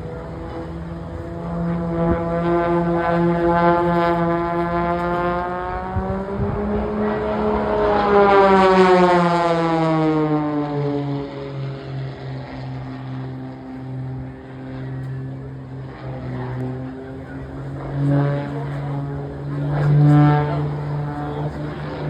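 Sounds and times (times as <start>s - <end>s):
propeller aircraft flying past: 0.0s - 22.0s.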